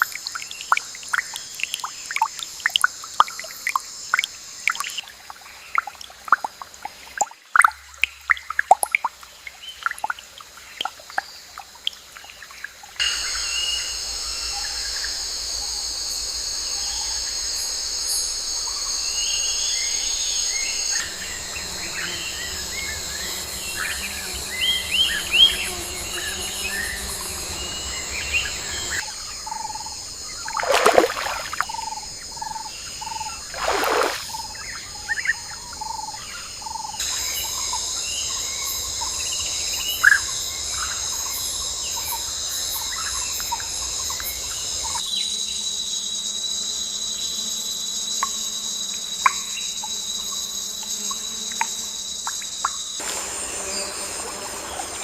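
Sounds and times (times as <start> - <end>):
water dripping: 0.0 - 13.0, 30.5 - 31.7, 33.5 - 34.3
insects chorus: 0.0 - 55.0.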